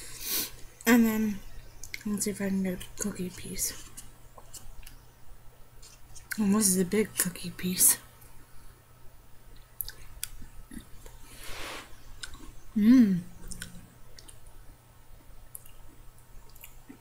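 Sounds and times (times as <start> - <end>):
person chewing: 9.5 - 11.2, 12.1 - 12.6, 13.4 - 14.5, 15.2 - 17.0
person humming: 12.8 - 13.4.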